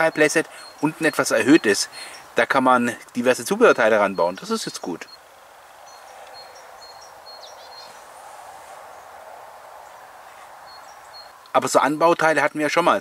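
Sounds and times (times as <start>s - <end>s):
high bird chirps: 0.0s - 2.4s, 3.4s - 8.2s, 8.8s - 11.5s
faint background hiss: 0.0s - 13.0s.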